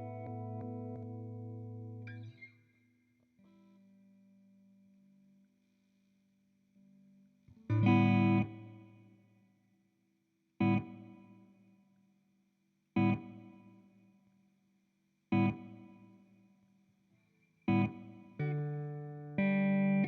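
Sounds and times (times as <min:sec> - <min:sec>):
electric guitar chord with delay: 0:00.0 - 0:02.0.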